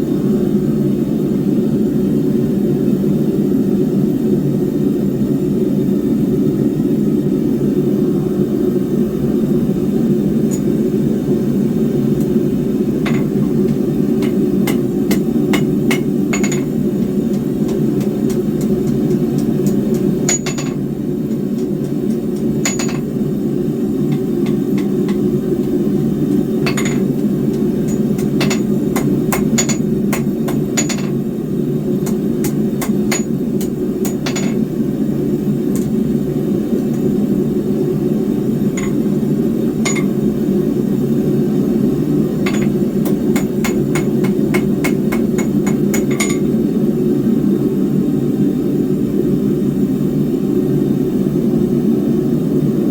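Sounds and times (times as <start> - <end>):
hammer striking steel on anvil: 13.0 - 23.2, 26.6 - 31.2, 32.0 - 34.6, 38.8 - 39.0, 39.8 - 40.2, 42.5 - 46.5.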